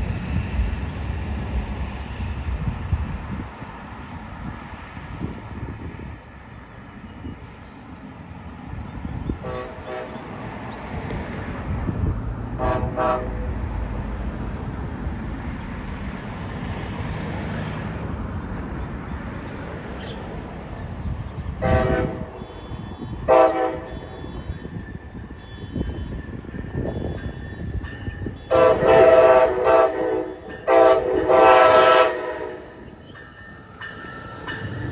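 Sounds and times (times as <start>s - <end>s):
low rumble of train: 0.0s - 34.9s
train horn blasts: 9.4s - 10.4s, 12.6s - 13.6s, 21.6s - 24.8s, 28.4s - 32.9s.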